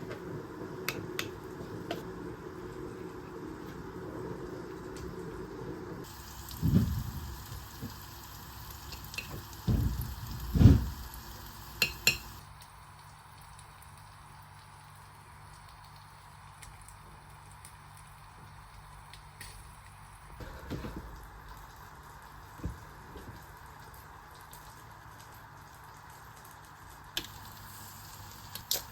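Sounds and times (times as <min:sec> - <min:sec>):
food sizzling in a frying pan: 0:06.0 - 0:28.9
dull thumps: 0:09.6 - 0:11.0.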